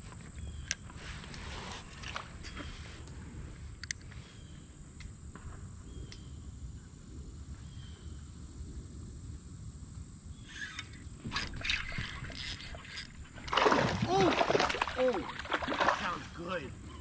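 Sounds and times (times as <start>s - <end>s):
brief rustling or splashing: 11.3s - 16.4s.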